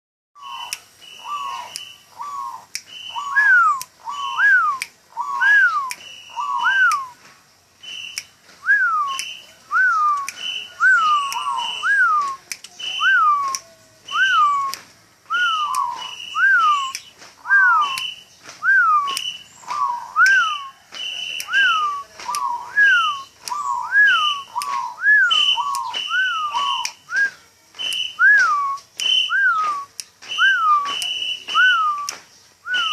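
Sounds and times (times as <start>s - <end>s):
dove cooing: 0.4s - 7.2s, 21.6s - 26.9s
high whistle-like note: 7.9s - 32.1s.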